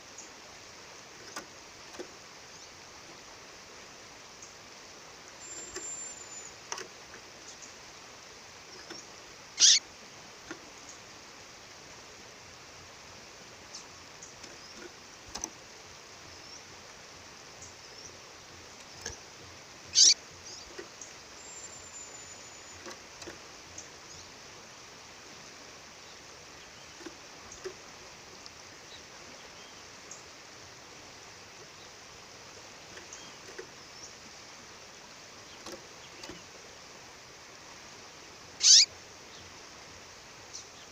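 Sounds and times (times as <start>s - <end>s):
faint short chirps: 5.4s - 6.6s
songbird sharp high calls: 5.4s - 6.6s, 8.8s - 9.9s, 19.9s - 20.7s, 21.4s - 22.9s, 38.6s - 38.9s.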